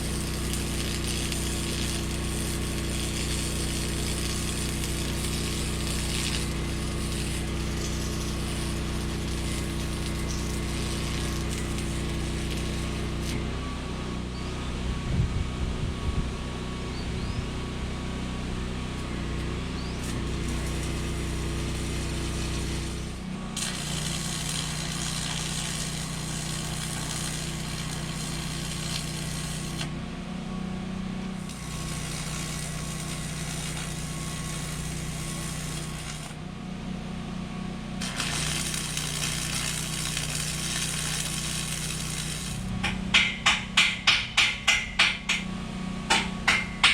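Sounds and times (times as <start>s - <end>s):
welding arc sizzling: 0.0s - 13.4s, 18.9s - 29.9s, 31.4s - 36.4s, 38.0s - 45.4s
generator engine hum: 0.0s - 46.9s.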